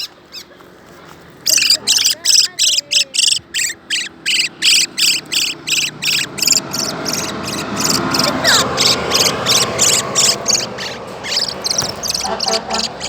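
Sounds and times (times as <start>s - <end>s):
bird trilled chirps: 1.4s - 13.0s
falling bird whistle: 1.5s - 13.0s.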